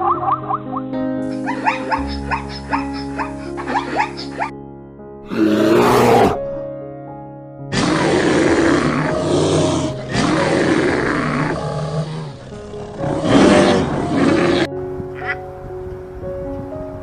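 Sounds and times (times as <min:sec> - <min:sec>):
background music: 0:00.0 - 0:17.0
animal roaring: 0:05.3 - 0:06.4, 0:07.7 - 0:14.7.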